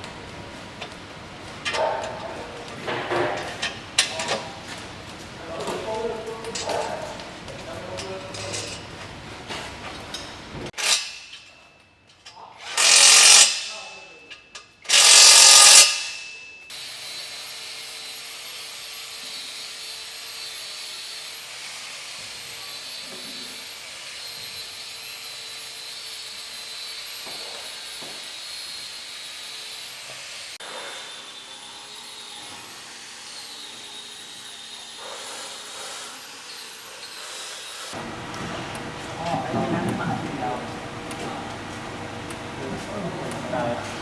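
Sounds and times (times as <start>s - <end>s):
power tool burst: 12.6s - 14.0s, 14.9s - 17.0s.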